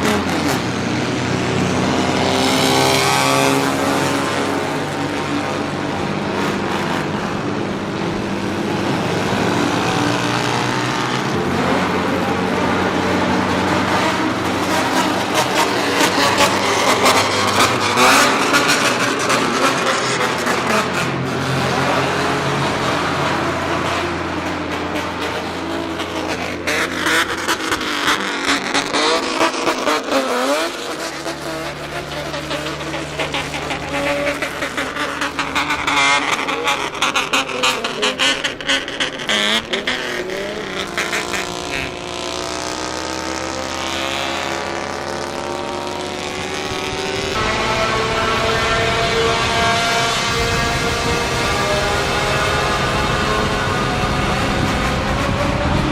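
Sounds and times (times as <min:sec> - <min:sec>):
vehicle engine and exhaust running: 0:00.0 - 0:55.9.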